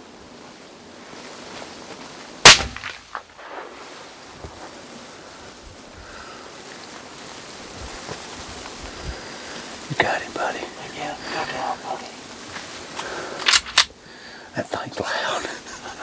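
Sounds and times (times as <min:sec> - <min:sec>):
rifle shot echoing: 0:02.4 - 0:03.8
wind noise: 0:03.4 - 0:14.2.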